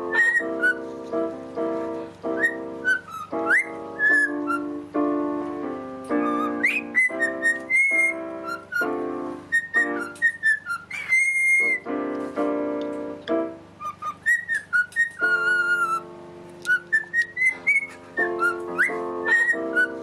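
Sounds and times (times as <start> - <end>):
parrot whistling a tune: 0.0 - 1.0, 2.3 - 4.8, 6.1 - 11.9, 13.8 - 20.0
music of held chords: 0.0 - 20.0.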